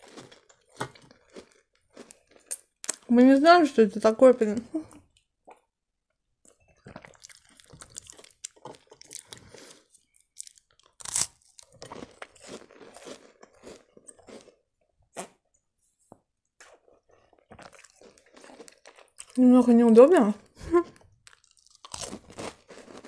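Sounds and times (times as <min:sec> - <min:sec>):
crunching and chewing biscuit: 0:00.0 - 0:03.1, 0:06.4 - 0:15.5, 0:16.5 - 0:19.4, 0:20.4 - 0:23.0.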